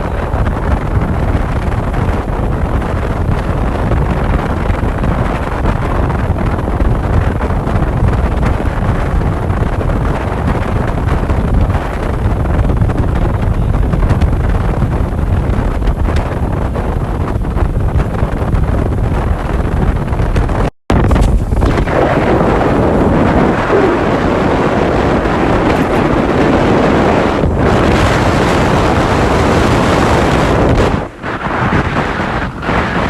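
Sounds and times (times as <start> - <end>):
wind buffeting microphone: 0.0 - 33.0
low vehicle rumble: 9.3 - 31.2.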